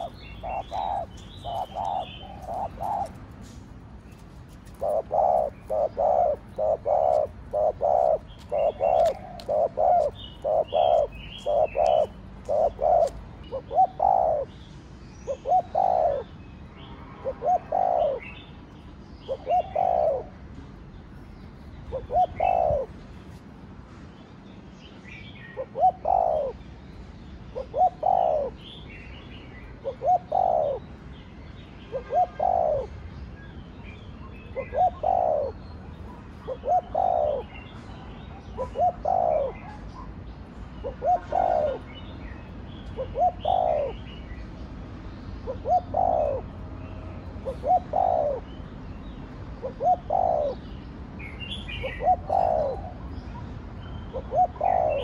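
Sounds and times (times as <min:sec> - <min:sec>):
dove cooing: 0:00.0 - 0:14.6, 0:15.3 - 0:16.3, 0:17.2 - 0:18.4, 0:19.3 - 0:20.4, 0:21.8 - 0:23.0, 0:25.6 - 0:26.6, 0:27.6 - 0:28.7, 0:29.8 - 0:30.8, 0:31.9 - 0:32.9, 0:34.4 - 0:40.1, 0:40.8 - 0:42.0, 0:42.8 - 0:44.1, 0:45.4 - 0:46.6, 0:47.4 - 0:48.6, 0:49.6 - 0:50.8, 0:51.7 - 0:53.4, 0:54.1 - 0:55.0
small birds chirping: 0:00.0 - 0:55.0.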